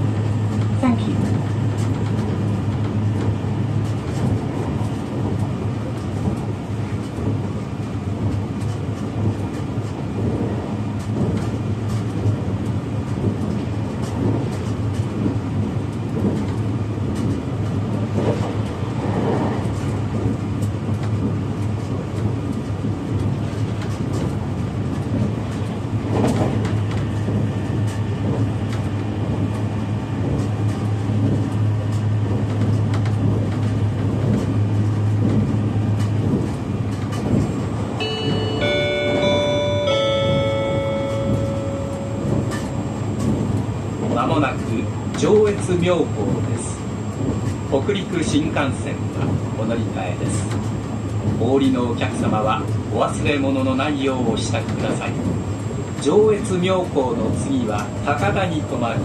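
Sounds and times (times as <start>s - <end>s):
train interior hum: 0.0s - 59.0s
wheel and rail noise: 0.0s - 59.0s.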